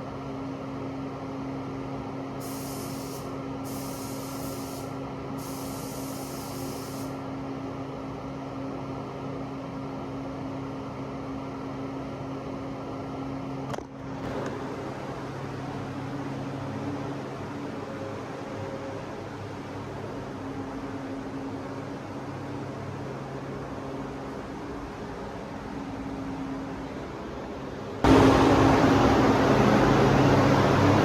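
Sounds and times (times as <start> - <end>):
high hissing spray: 2.4 - 7.2
machine hum: 28.0 - 31.0.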